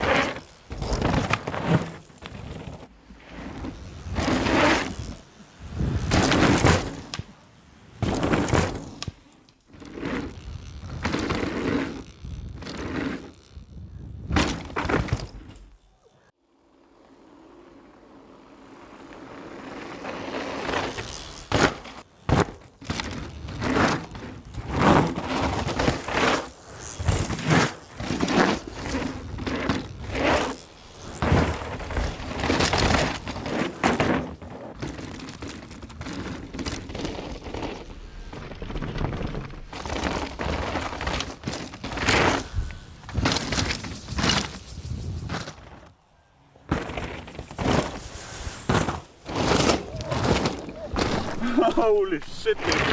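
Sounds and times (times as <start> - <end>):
bike knocking and rattling: 0.0 - 16.2, 18.6 - 46.0, 46.6 - 51.8
tyres crunching over dirt: 18.8 - 52.9.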